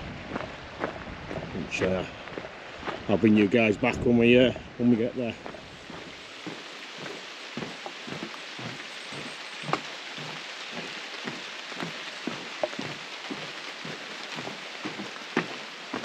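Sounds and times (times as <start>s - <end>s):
rain falling: 0.0s - 16.0s
raindrop taps: 5.4s - 16.0s.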